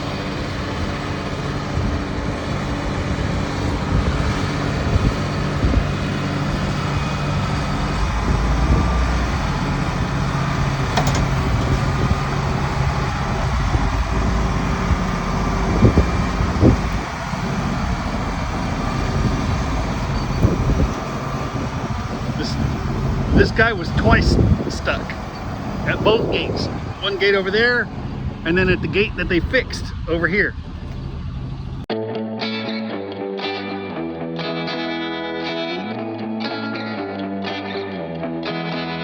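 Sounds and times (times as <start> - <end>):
tyre and road noise: 0.0 - 31.9
vehicle engine humming: 0.0 - 31.9
sharp knocks: 10.8 - 12.0.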